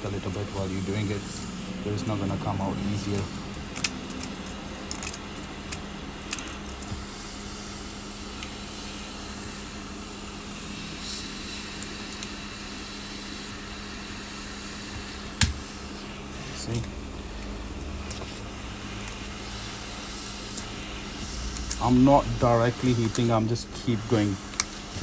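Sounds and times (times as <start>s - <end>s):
heat gun blowing: 6.3s - 16.8s, 17.4s - 25.0s.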